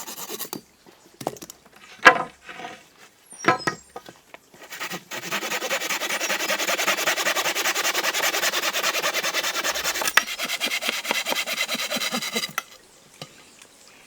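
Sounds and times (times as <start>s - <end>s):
hand tool rasping on wood: 4.6s - 12.7s.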